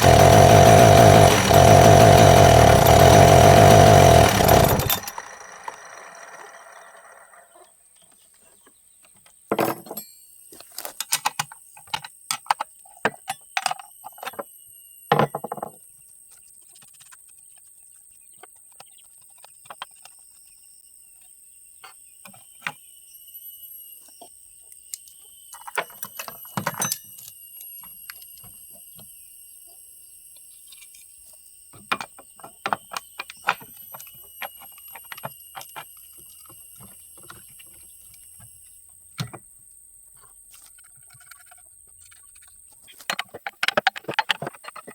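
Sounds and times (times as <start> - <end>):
hand tools clattering: 0.0 - 5.8.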